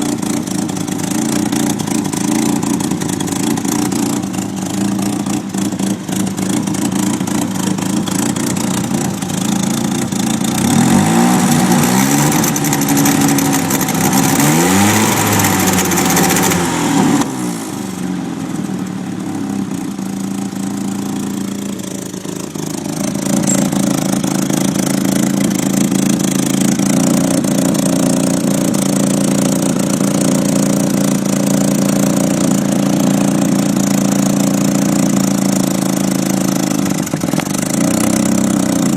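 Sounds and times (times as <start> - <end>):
car engine running rough: 0.0 - 38.9.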